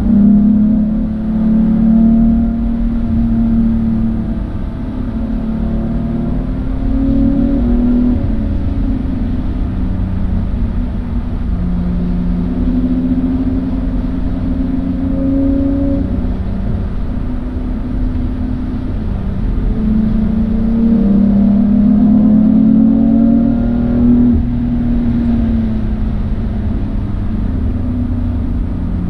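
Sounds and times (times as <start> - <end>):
car engine: 0.0 - 29.0
road and wind noise: 0.0 - 29.0.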